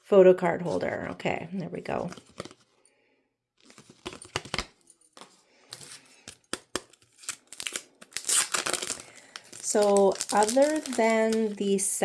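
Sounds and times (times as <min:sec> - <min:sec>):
paper rustling: 0:03.6 - 0:12.0.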